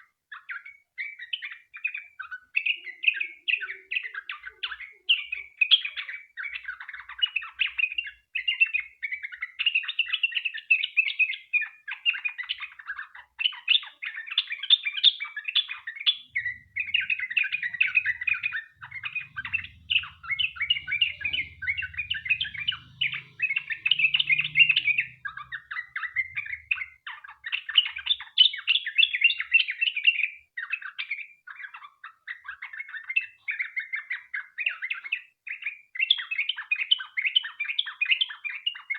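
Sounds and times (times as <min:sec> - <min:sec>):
bulbul singing bubbly chatter: 0:15.7 - 0:28.3.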